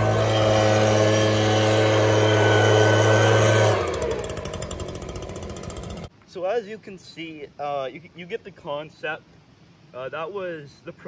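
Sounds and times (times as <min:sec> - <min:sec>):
leaf blower running: 0:00.0 - 0:06.1.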